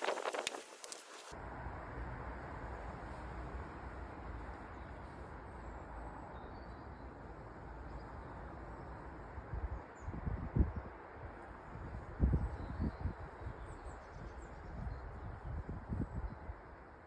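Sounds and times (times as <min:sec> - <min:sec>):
wind buffeting the microphone: 0:00.0 - 0:01.3, 0:09.5 - 0:11.0, 0:11.6 - 0:16.8
steady rumbling hiss: 0:00.0 - 0:01.7.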